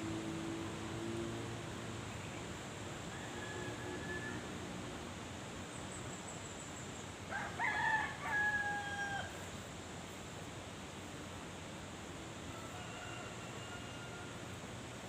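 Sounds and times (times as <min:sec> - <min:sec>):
steady background hiss: 0:00.0 - 0:15.0
rooster crowing: 0:03.1 - 0:04.7, 0:07.3 - 0:09.4, 0:12.5 - 0:14.7.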